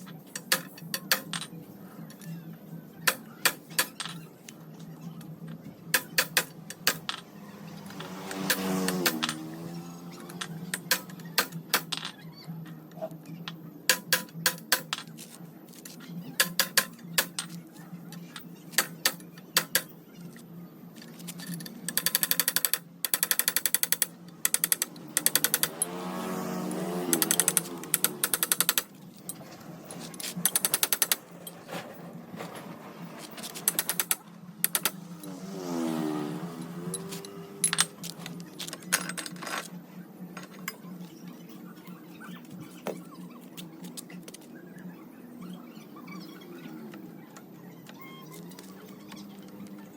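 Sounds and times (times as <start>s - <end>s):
metallic clicks and knocks: 0.1s - 2.3s, 5.9s - 12.2s, 13.4s - 15.3s, 16.4s - 17.6s, 18.2s - 20.0s, 21.0s - 26.0s, 27.1s - 31.8s, 32.6s - 35.3s, 36.6s - 39.7s.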